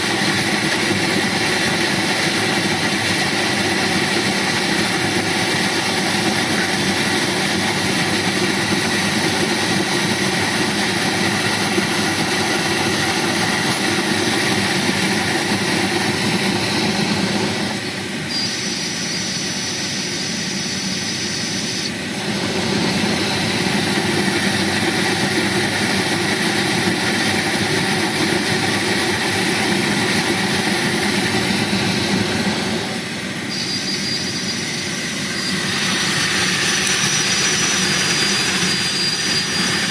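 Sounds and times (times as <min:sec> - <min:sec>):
heater blower fan rushing air: 0:00.0 - 0:39.9
thin high fan whistle: 0:17.7 - 0:22.1, 0:32.8 - 0:39.9.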